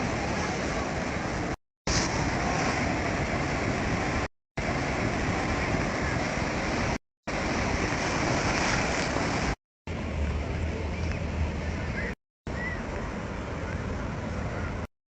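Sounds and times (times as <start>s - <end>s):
ocean surf rushing: 0.0s - 14.9s
wind: 0.0s - 14.9s.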